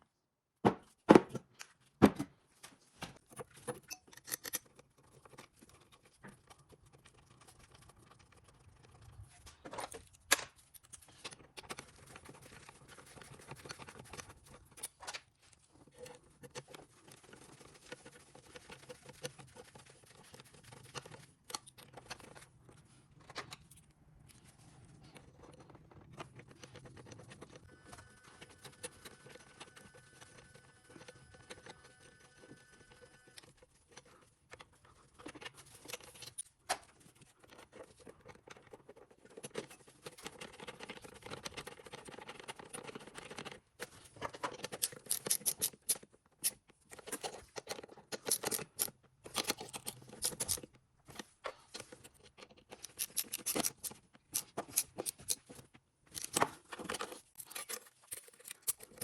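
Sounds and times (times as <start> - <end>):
handling clicks and rustles: 33.4 - 59.0.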